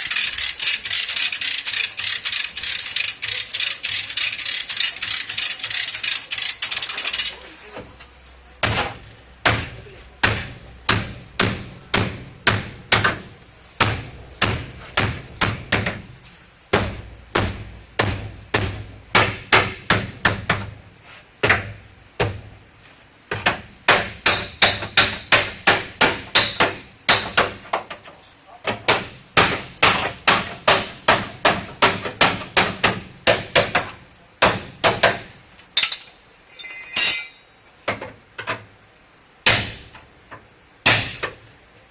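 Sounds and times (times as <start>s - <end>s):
hammer on sheet metal: 23.9s - 27.4s.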